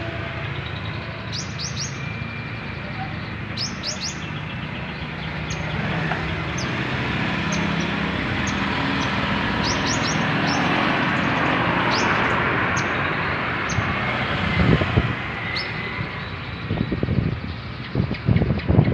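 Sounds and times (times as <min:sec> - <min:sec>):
loud steady rushing noise: 0:00.0 - 0:18.9
songbird chirping: 0:00.5 - 0:14.2.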